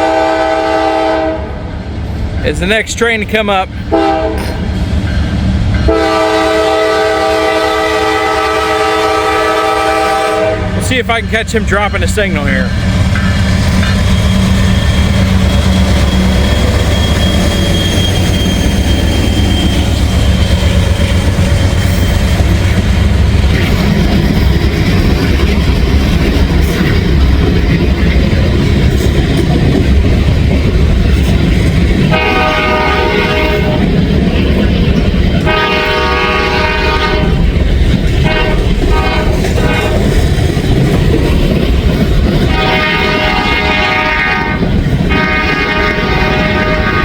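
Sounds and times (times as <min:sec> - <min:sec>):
locomotive horn blasts: 0:00.0 - 0:01.5, 0:03.9 - 0:04.6, 0:05.9 - 0:10.8, 0:32.1 - 0:33.9, 0:35.4 - 0:37.4, 0:38.2 - 0:40.0, 0:42.5 - 0:47.0
diesel locomotives rumbling: 0:00.0 - 0:47.0
wheels clacking on rails: 0:02.1 - 0:47.0.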